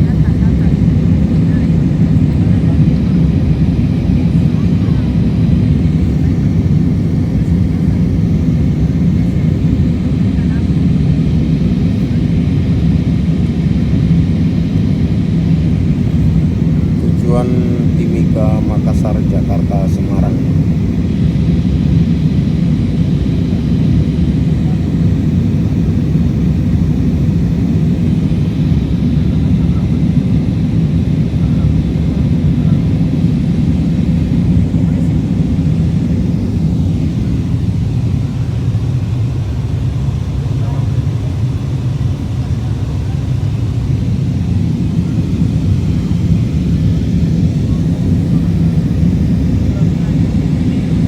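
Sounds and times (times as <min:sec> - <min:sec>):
low-flying aircraft engines droning: 0:00.0 - 0:51.0.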